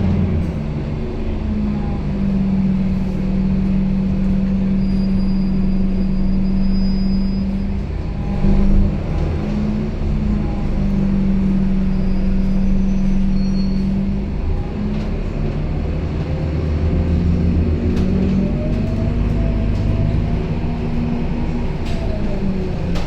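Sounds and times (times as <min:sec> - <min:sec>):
bus engine drone: 0:00.0 - 0:23.0.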